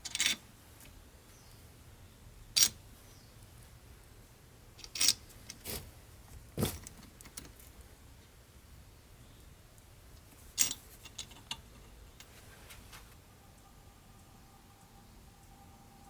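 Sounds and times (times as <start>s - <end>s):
metal clinks and knocks: 10.6s - 12.3s.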